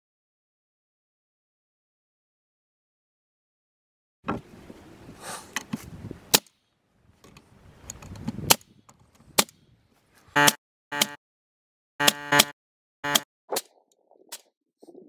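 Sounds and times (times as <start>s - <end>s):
nail gun firing: 6.3s - 6.6s, 9.4s - 9.6s, 12.0s - 13.2s.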